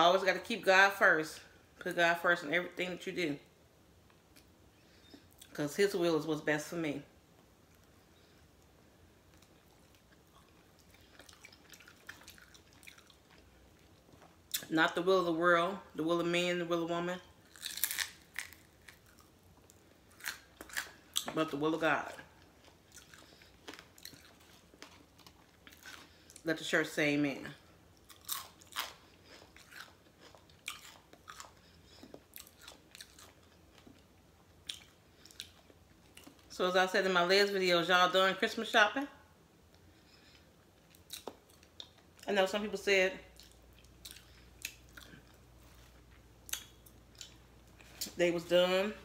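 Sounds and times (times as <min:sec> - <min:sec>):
chewing crispy chicken: 0:09.3 - 0:14.7, 0:17.4 - 0:21.3, 0:22.1 - 0:26.4, 0:28.0 - 0:36.5, 0:40.2 - 0:42.3, 0:43.4 - 0:48.1.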